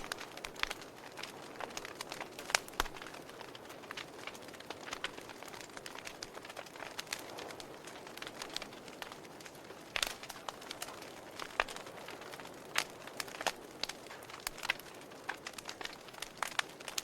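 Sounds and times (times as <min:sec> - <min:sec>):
loud pops of fire: 0:00.0 - 0:17.0
wood fire crackling: 0:00.0 - 0:17.0.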